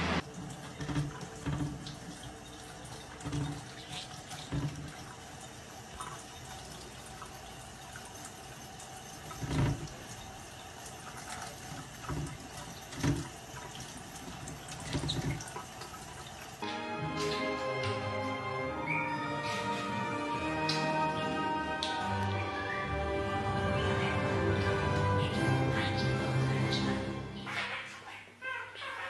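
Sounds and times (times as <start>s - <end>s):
water running and splashing: 0.0s - 16.6s.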